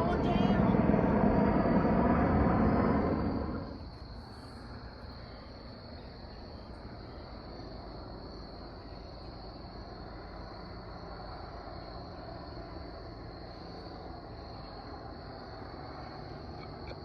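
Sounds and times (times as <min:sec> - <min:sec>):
faint low rumble: 0:00.0 - 0:06.0.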